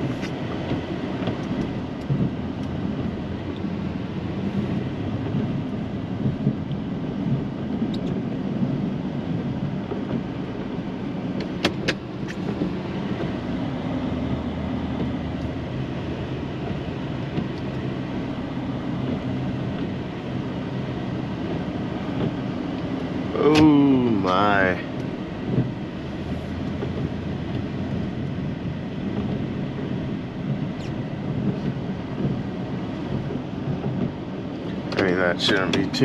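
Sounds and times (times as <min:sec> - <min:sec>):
truck engine running: 0:00.0 - 0:36.0.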